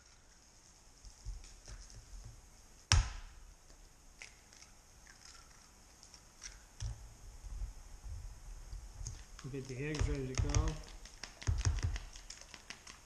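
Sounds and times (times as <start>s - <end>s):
loud sharp knock: 2.9s - 3.3s.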